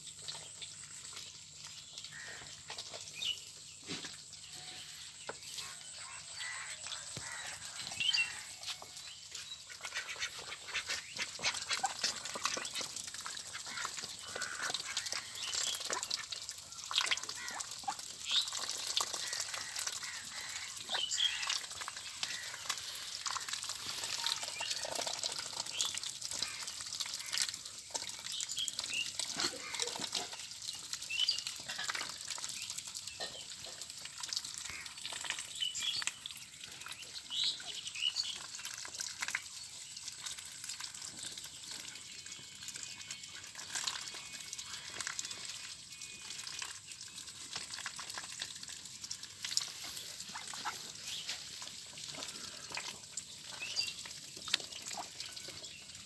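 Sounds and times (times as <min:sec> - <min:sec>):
water splashing: 0:01.8 - 0:32.6
ducks calling: 0:09.6 - 0:16.2.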